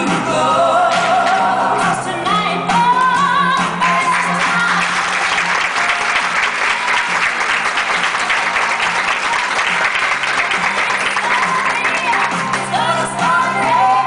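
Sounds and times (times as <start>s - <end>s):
pop dance track: 0.0s - 5.1s, 9.7s - 14.0s
audience applauding: 3.8s - 14.0s.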